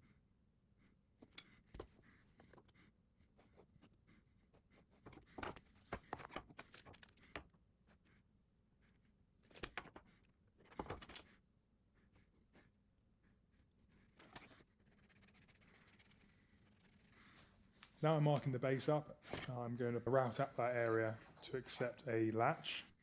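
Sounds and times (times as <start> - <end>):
wooden workpieces clicking and knocking: 5.0 - 7.5, 10.6 - 11.3, 19.2 - 19.6.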